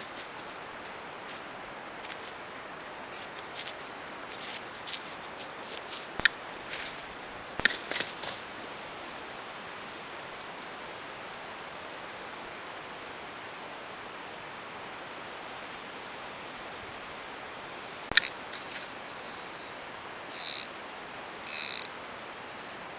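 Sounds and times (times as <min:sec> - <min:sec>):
microphone hiss: 0:00.0 - 0:22.9
sharp click: 0:07.6 - 0:07.9.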